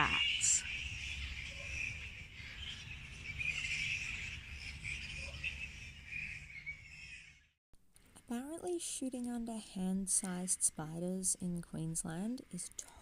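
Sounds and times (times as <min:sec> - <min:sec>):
flying foxes chattering: 0:00.0 - 0:07.4.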